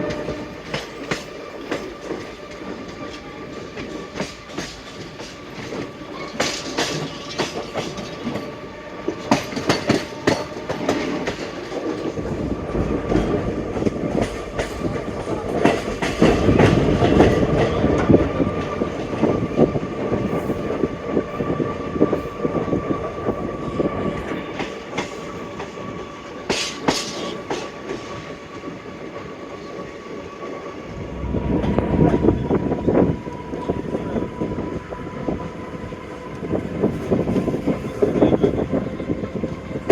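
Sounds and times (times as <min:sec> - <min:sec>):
train wheels clicking over rail joints: 0:00.0 - 0:22.2, 0:24.3 - 0:29.7
train rumble: 0:00.0 - 0:39.9.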